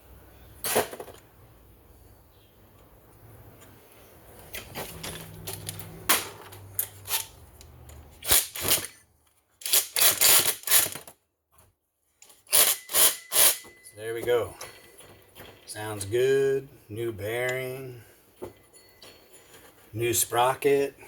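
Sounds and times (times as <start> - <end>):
metal clicks and tool clatter: 4.5 - 9.0.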